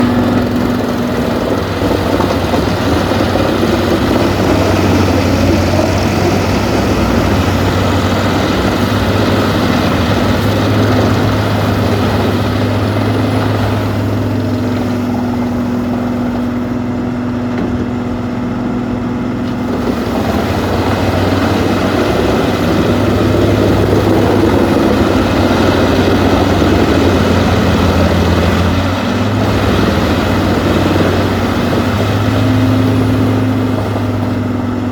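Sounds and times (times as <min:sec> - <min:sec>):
diesel engine hum: 0:00.0 - 0:34.9
wood chipper noise: 0:00.0 - 0:34.9.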